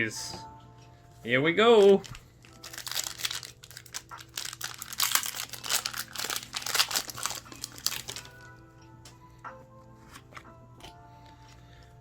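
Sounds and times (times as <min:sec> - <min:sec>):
foil wrapper crinkling and tearing: 0:01.8 - 0:08.4.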